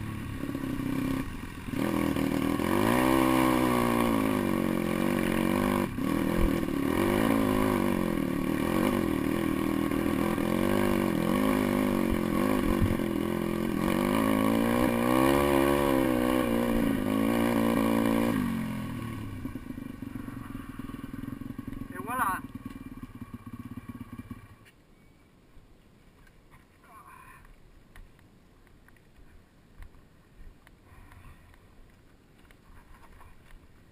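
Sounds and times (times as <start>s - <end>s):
motorbike engine revving: 0.0s - 24.7s
faint low rumble: 18.4s - 33.9s.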